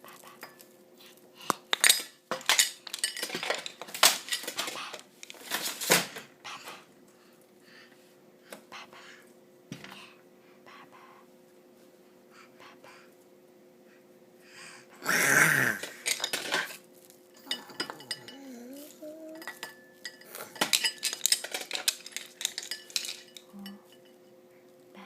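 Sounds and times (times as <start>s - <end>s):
clinking and clattering: 17.4s - 18.5s, 19.4s - 24.2s.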